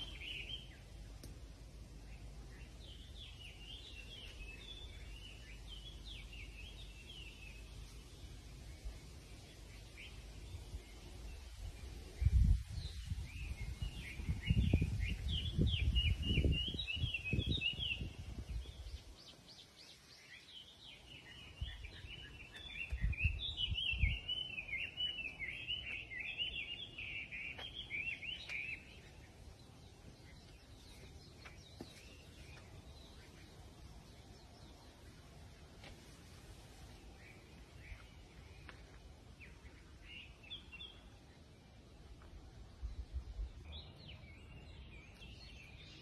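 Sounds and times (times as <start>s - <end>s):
songbird twittering: 0.0s - 1.2s, 12.2s - 35.0s
wind rumble on microphone: 10.0s - 19.6s, 20.8s - 24.5s, 42.4s - 46.0s.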